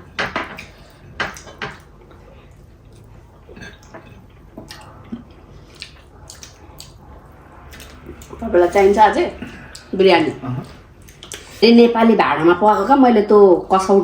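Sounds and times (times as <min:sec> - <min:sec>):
person chewing food: 0:00.5 - 0:08.4, 0:09.4 - 0:11.6
wet mouth noises: 0:04.6 - 0:07.0.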